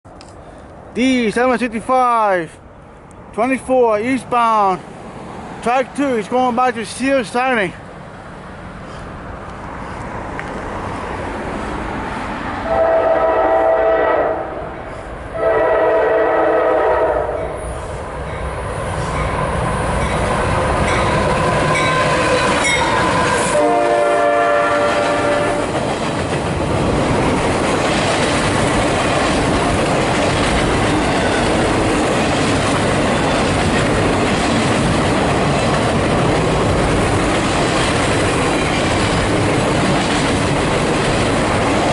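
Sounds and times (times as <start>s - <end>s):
train passing rumble: 0.1s - 41.9s
locomotive horn blasts: 12.6s - 14.6s, 15.4s - 17.6s, 21.8s - 25.8s
wheels clacking on rail joints: 19.0s - 23.9s, 24.7s - 41.9s.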